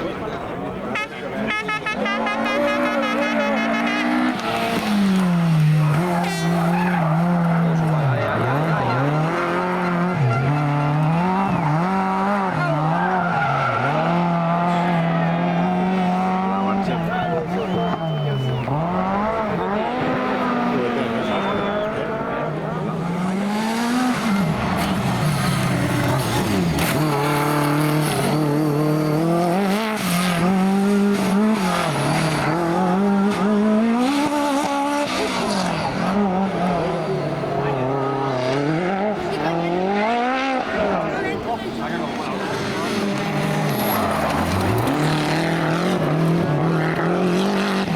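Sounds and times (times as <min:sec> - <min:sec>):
rally car engine revving: 0:01.9 - 0:47.9.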